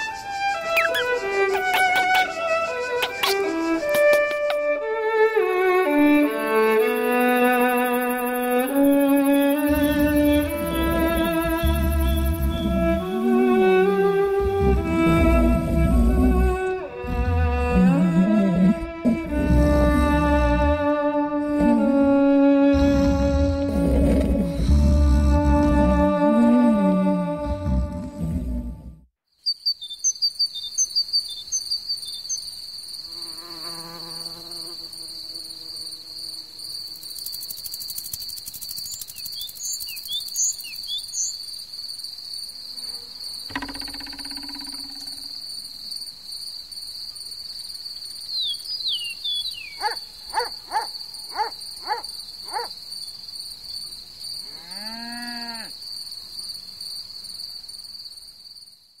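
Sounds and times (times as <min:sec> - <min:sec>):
crickets trilling: 0:00.0 - 0:28.6, 0:29.4 - 0:59.0
brief pitched calls: 0:00.6 - 0:04.5
short chirps: 0:00.7 - 0:02.4.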